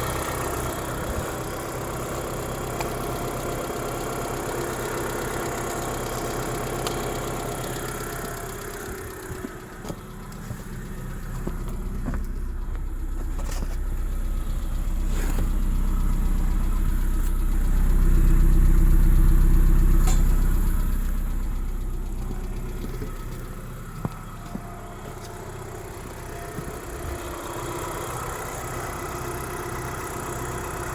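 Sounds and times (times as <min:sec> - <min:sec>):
car engine idling: 0:00.0 - 0:30.9.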